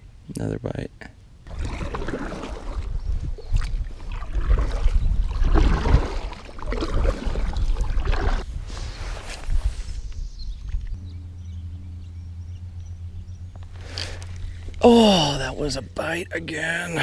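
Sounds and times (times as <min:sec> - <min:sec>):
water shifting: 0:01.4 - 0:08.5, 0:10.6 - 0:17.0
wind rumbling on microphone: 0:01.4 - 0:16.2
boat handling noise: 0:10.1 - 0:17.0.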